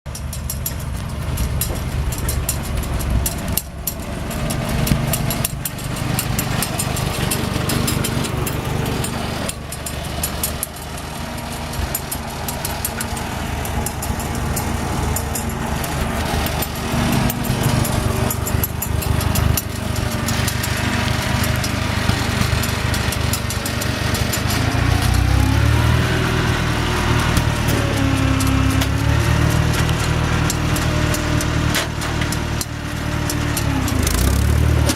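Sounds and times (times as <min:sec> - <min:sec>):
faint steady clatter: 0:00.1 - 0:34.9
loader-backhoe engine running: 0:00.1 - 0:34.9.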